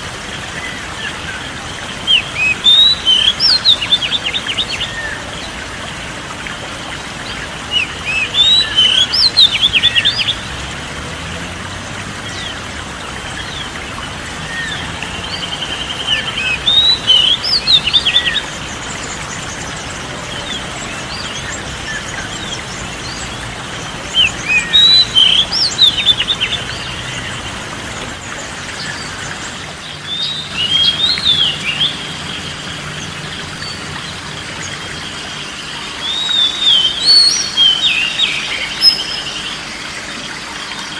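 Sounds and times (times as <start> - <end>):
songbird twittering: 2.0 - 5.6, 7.7 - 10.5, 13.4 - 27.4, 28.8 - 39.6.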